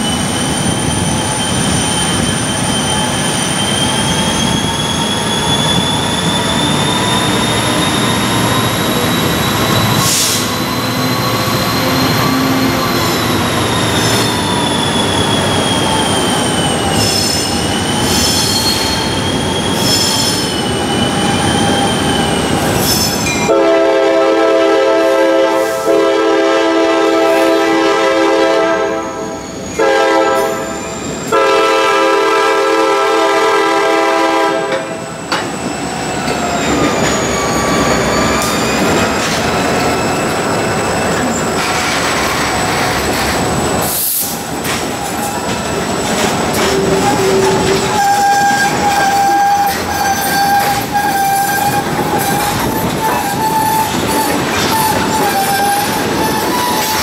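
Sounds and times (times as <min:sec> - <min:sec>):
freight train wheels squealing: 0:00.0 - 0:23.6, 0:28.8 - 0:31.8, 0:32.5 - 0:57.0
locomotive passing: 0:00.0 - 0:27.0, 0:27.6 - 0:57.0
locomotive horn blowing: 0:23.5 - 0:34.9, 0:46.8 - 0:57.0.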